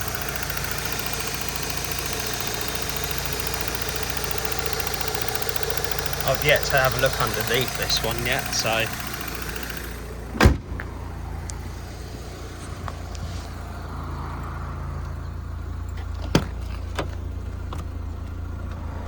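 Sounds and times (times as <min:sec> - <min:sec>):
steady low rumble: 0:06.3 - 0:18.8
loud thump on car bodywork: 0:10.4 - 0:10.8.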